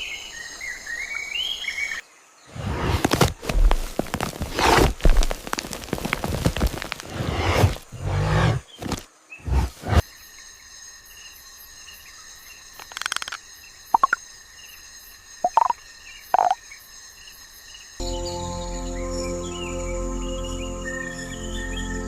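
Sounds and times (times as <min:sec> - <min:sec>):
high-pitched insect chorus: 0:10.0 - 0:22.0
short chirping calls: 0:14.0 - 0:14.2, 0:15.4 - 0:16.6.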